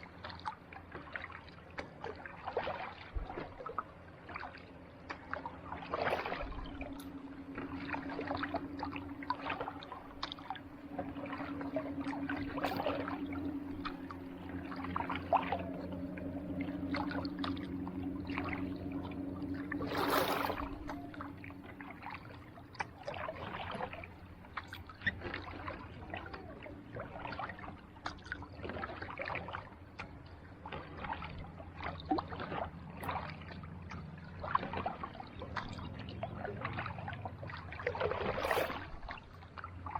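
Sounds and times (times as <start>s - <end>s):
low hum: 0.0s - 39.9s
paddle splashing in water: 0.0s - 39.9s.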